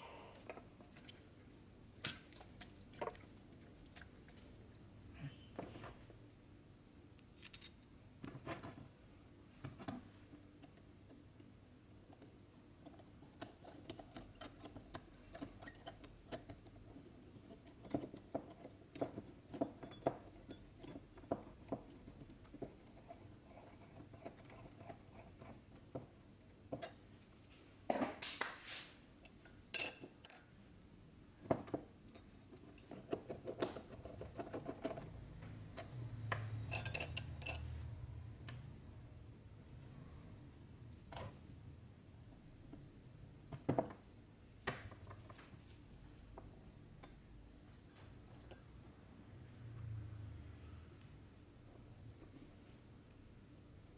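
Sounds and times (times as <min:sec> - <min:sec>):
noisy hiss: 0:00.0 - 0:02.3
small metal parts clinking: 0:07.3 - 0:07.9, 0:36.5 - 0:37.8.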